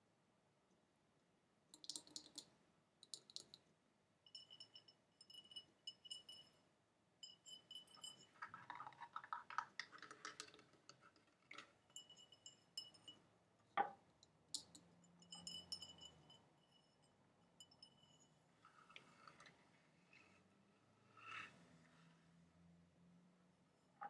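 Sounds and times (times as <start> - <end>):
tapping on glass: 12.0 - 13.2.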